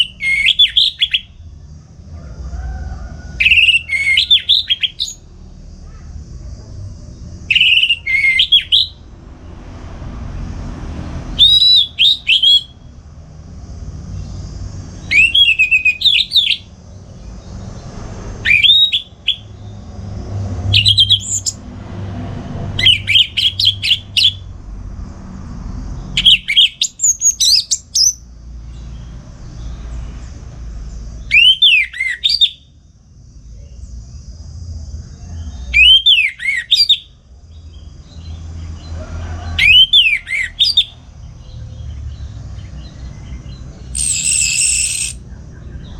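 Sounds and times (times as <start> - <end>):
thrush singing whistled phrases: 0.0 - 1.4, 3.4 - 5.2, 7.5 - 9.1, 11.3 - 12.8, 15.0 - 16.7, 18.4 - 19.6, 20.7 - 21.6, 22.8 - 24.4, 26.2 - 28.2, 31.2 - 32.7, 35.7 - 37.2, 39.6 - 41.0, 43.9 - 45.3
low steady rumble: 1.0 - 3.4, 4.7 - 31.3.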